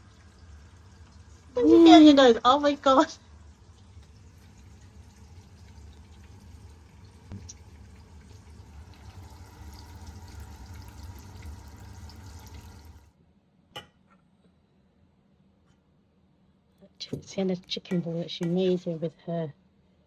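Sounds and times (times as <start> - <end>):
chicken sizzling in hot oil: 0.0 - 13.1.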